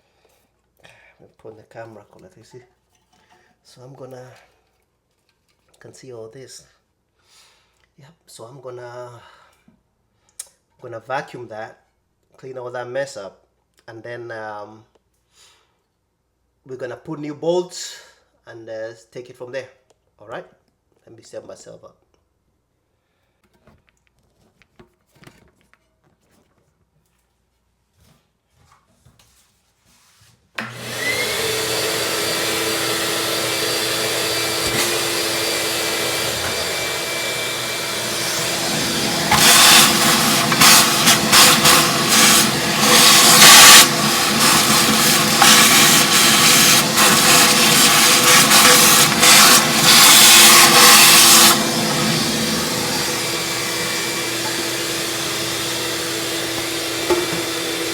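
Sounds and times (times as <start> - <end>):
vacuum cleaner running: 30.6 - 57.9
debris rattling in vacuum: 30.7 - 57.9.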